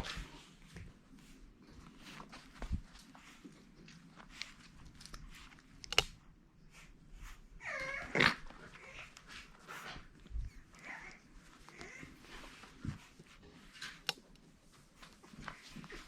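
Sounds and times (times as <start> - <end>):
small clicks: 5.8 - 6.2
puppy whining: 6.8 - 13.2.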